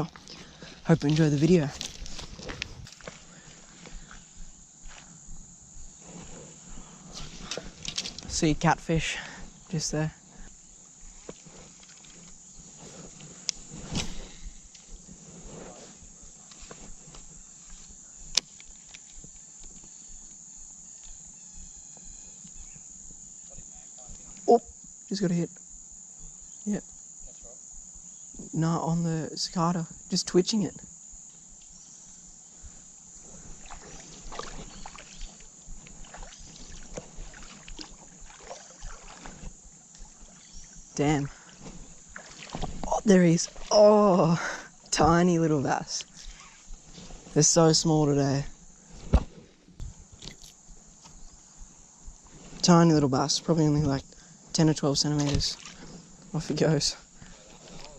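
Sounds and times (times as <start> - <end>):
high-pitched insect chorus: 0.0 - 57.9
lure splashing on water: 36.0 - 39.3.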